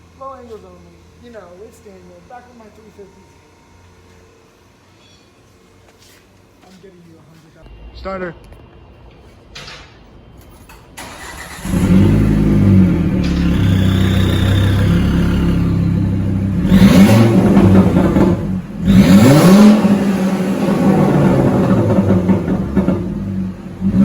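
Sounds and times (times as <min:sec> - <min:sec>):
car engine cranking and starting: 0:11.0 - 0:24.0
loud car engine idling and revving: 0:11.1 - 0:24.0.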